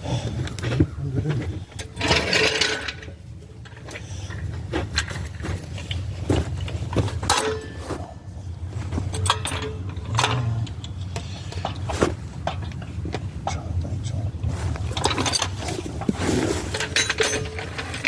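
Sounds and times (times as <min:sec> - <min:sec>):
noisy rattle: 0:00.0 - 0:18.0
steady low hum: 0:00.0 - 0:18.0
metal clanks from tools: 0:01.7 - 0:08.2, 0:09.0 - 0:13.7, 0:14.8 - 0:18.0.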